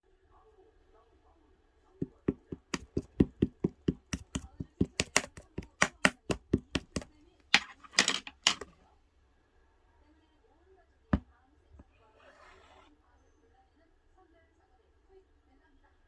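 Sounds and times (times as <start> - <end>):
ice cream scoop tapping: 2.0 - 7.7
ice cream scraping: 11.9 - 12.9.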